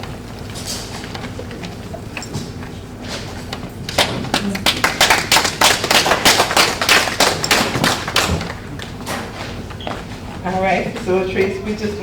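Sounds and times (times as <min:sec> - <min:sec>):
small group applauding: 0:03.8 - 0:09.3.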